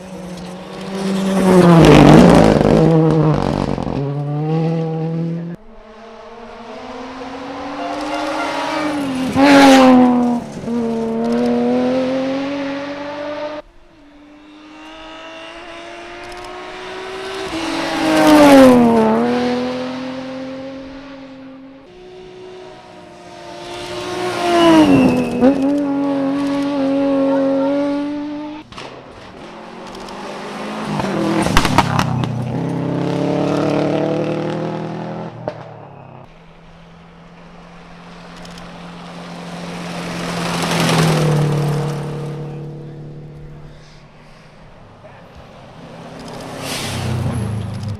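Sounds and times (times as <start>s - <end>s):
rally cars passing at speed: 0.0s - 47.9s
sharp cracks: 28.6s - 32.9s, 35.5s - 47.9s.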